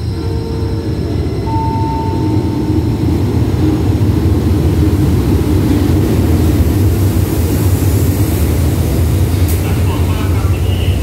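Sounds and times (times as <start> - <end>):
diesel locomotive rumbling: 0.0 - 11.0
wheel and rail hiss: 5.6 - 11.0.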